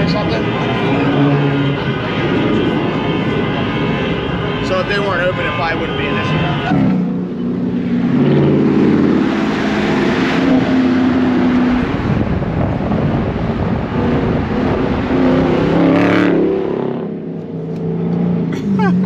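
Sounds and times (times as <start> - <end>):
car engine revving: 5.9 - 18.6.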